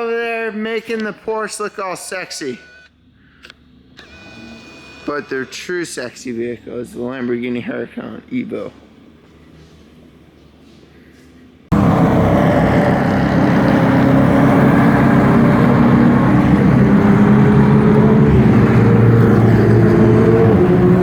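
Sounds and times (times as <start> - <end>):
car engine running: 11.7 - 21.0.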